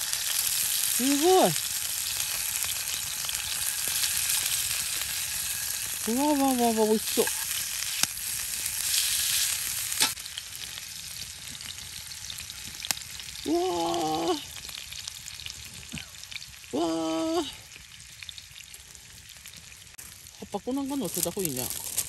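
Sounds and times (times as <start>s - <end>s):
food frying in hot oil: 0.0s - 22.0s
held voice-like tones: 13.4s - 14.5s, 16.8s - 17.6s.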